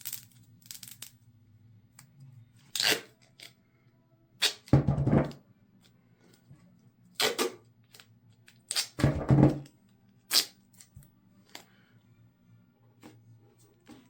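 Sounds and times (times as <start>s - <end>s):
duct tape ripping: 2.7s - 3.5s, 8.7s - 9.1s, 10.3s - 11.0s.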